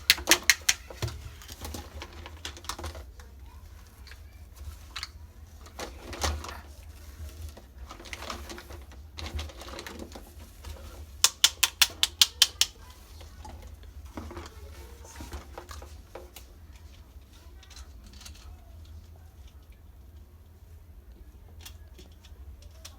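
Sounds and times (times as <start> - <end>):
sharp clicks: 0.0 - 1.0, 11.2 - 12.8
plastic toy pieces handled: 0.0 - 20.2.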